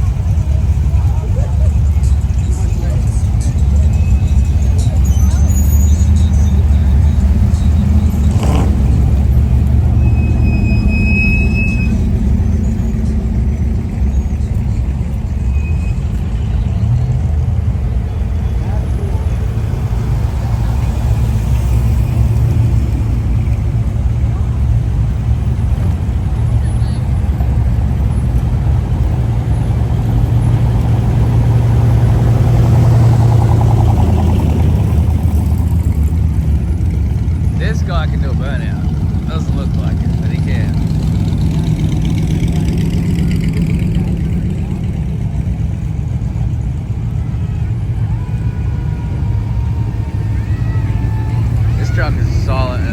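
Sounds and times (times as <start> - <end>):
car engine running: 0.0 - 52.9
high-pitched squeal: 9.8 - 14.8.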